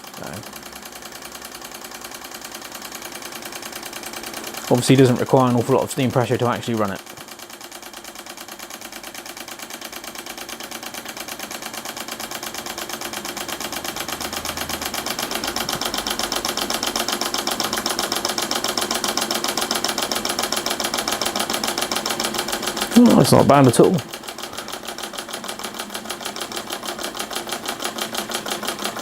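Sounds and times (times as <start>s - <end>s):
toy steam engine chuffing: 0.0s - 29.0s.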